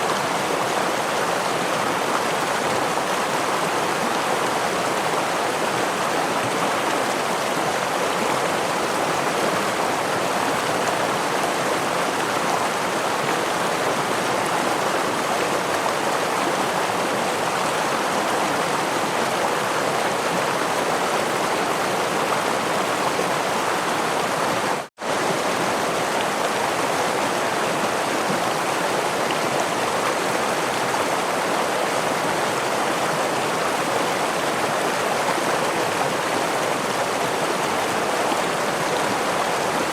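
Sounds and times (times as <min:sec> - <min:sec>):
stream running water: 0:00.0 - 0:39.9.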